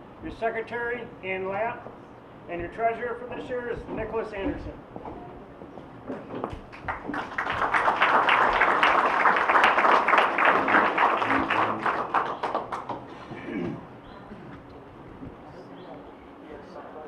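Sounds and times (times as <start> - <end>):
audience applauding: 6.7 - 13.1.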